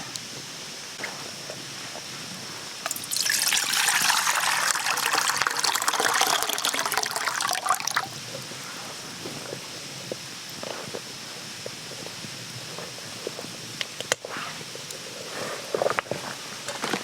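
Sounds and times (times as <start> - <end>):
water pouring: 2.8 - 8.2.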